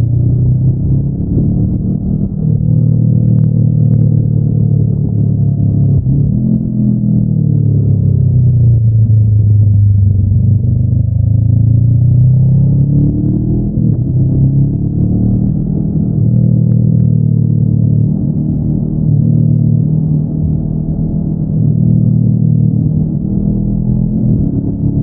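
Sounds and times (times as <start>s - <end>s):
motorcycle engine under way: 0.0s - 25.0s.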